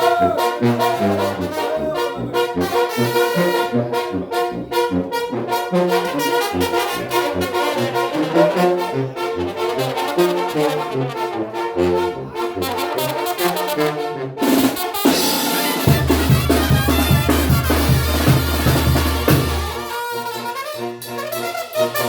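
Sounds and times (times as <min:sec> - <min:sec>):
brass band playing: 0:00.0 - 0:22.0
tuba bass line: 0:00.0 - 0:22.0
regular drum beat: 0:14.4 - 0:20.0.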